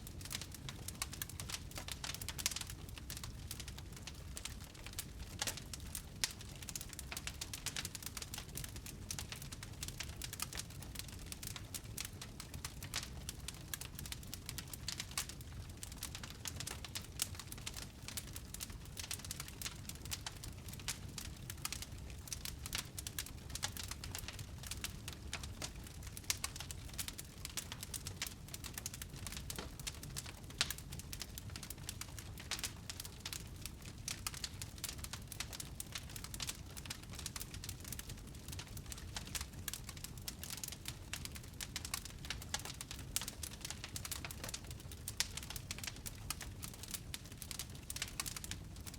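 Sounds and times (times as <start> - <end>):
low rumble of flames: 0.0 - 48.9
wood fire crackling: 0.0 - 48.9.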